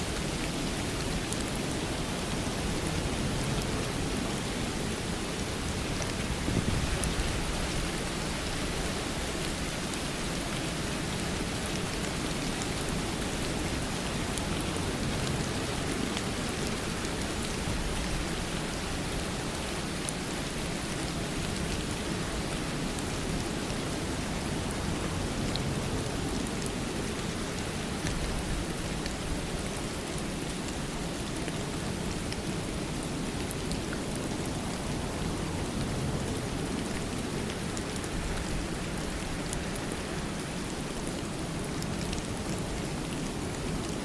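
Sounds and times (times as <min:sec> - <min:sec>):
steady rain: 0:00.0 - 0:44.0.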